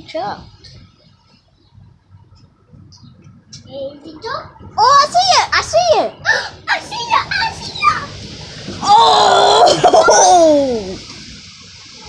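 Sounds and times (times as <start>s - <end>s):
storm wind: 4.5s - 12.0s
rain: 4.8s - 12.0s
child's drawn-out exclamation: 8.8s - 11.0s.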